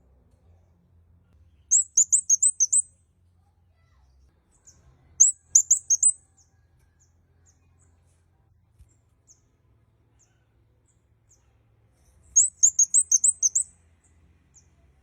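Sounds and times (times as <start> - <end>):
rapid sharp high bird notes: 1.7 - 2.8, 5.2 - 6.1, 12.4 - 13.6
bird calling with high chips: 1.7 - 2.9, 5.2 - 6.2, 12.4 - 13.7.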